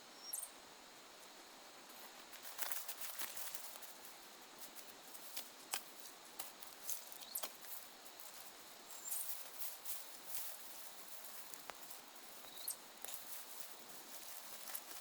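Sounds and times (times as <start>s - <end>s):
dry branches rustling and crackling: 1.8s - 15.0s.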